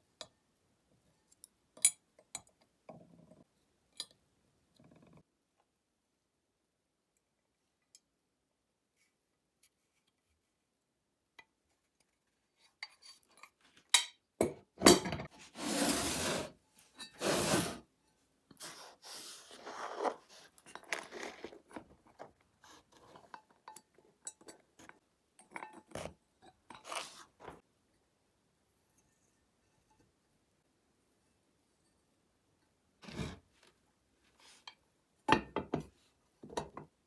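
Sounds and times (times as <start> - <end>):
objects scraping: 15.2 - 17.9, 18.6 - 23.3.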